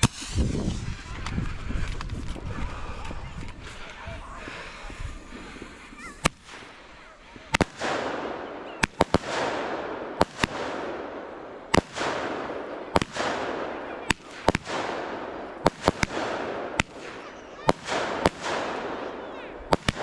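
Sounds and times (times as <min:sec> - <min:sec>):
fireworks bangs: 0:00.0 - 0:02.8, 0:03.4 - 0:20.0
fireworks crackling hiss: 0:00.0 - 0:11.0.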